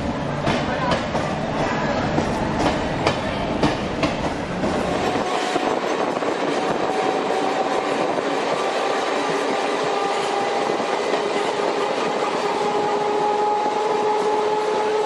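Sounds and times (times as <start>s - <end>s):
train rattling on rails: 0.0s - 15.0s.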